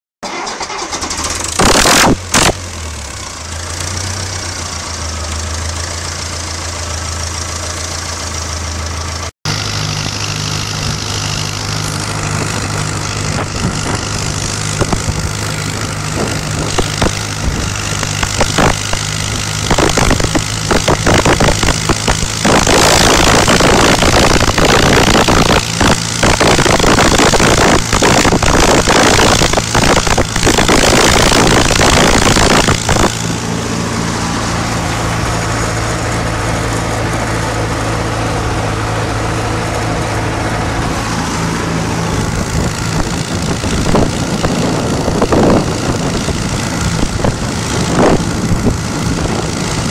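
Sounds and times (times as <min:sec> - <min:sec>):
tractor diesel engine idling: 0:00.2 - 0:01.5, 0:02.6 - 0:22.4, 0:32.7 - 0:49.9
engine knocking: 0:03.1 - 0:33.4, 0:42.2 - 0:49.9.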